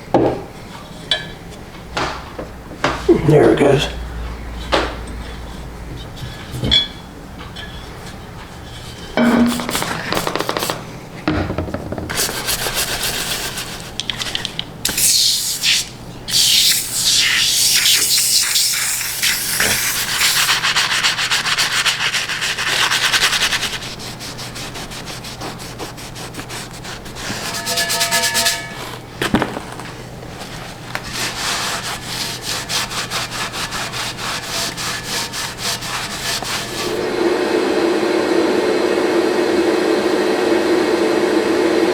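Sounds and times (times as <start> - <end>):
abrasive scraping on metal: 4.5 - 11.0, 26.9 - 29.2, 31.0 - 37.0.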